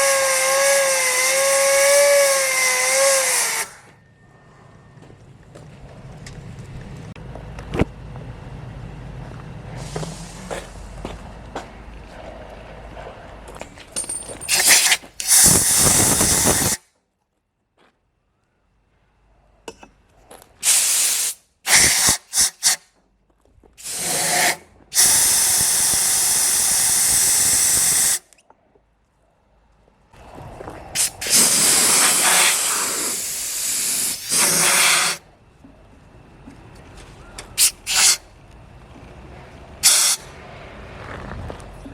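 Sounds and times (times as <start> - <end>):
gas turbine rushing hiss: 9.7 - 11.1, 14.5 - 16.8, 20.6 - 22.8, 23.8 - 28.3, 31.0 - 35.3, 37.6 - 38.2, 39.8 - 40.4.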